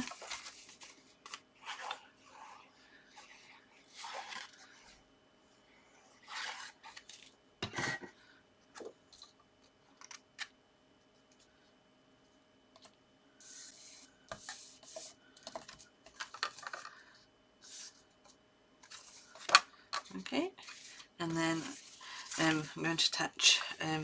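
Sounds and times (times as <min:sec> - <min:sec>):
paper sliding and rustling: 0:00.0 - 0:02.6, 0:03.2 - 0:04.9, 0:06.2 - 0:07.3, 0:20.6 - 0:22.7.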